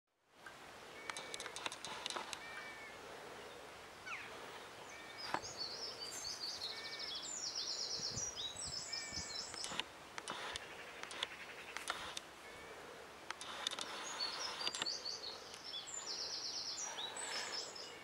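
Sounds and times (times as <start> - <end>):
light clicks: 0.4 - 2.4, 9.5 - 12.3, 13.3 - 14.0
songbirds singing: 0.4 - 18.0.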